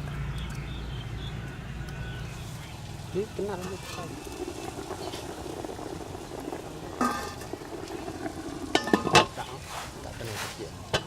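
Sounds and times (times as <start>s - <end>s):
food sizzling in a pan: 2.4s - 11.0s
utensil clinking against pan: 8.7s - 9.4s.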